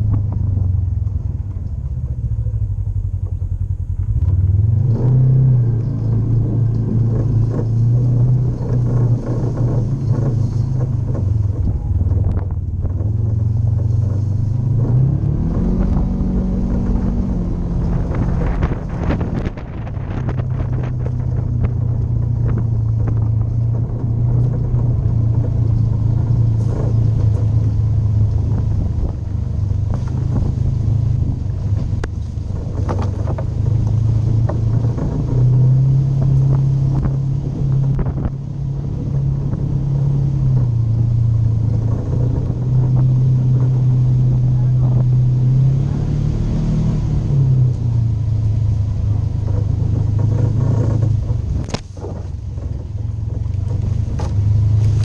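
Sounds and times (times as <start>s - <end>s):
off-road vehicle engine running: 0.0s - 55.0s
knocks and rattles: 5.7s - 38.5s, 49.0s - 55.0s.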